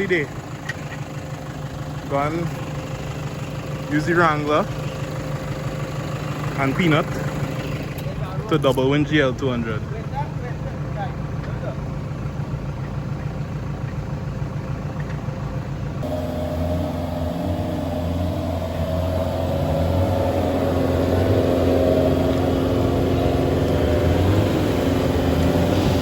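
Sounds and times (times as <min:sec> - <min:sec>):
off-road vehicle engines running: 0:00.0 - 0:26.0
hum with whining tone: 0:16.0 - 0:26.0.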